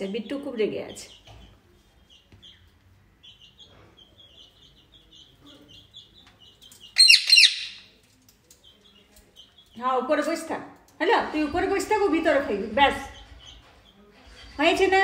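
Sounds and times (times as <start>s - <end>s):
parrot chattering: 7.0s - 7.8s
parrot harsh screeches: 7.0s - 7.8s.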